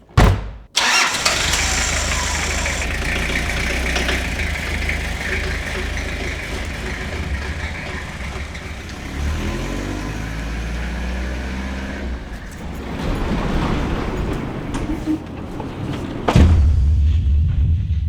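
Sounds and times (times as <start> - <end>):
vehicle engine revving: 0.8 - 15.2.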